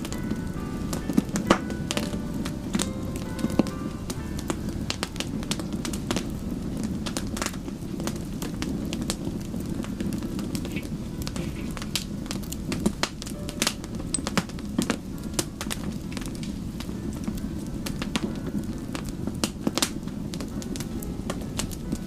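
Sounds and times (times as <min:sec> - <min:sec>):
burning wood crackling: 0:00.0 - 0:22.0
low rush of flames: 0:00.0 - 0:22.0.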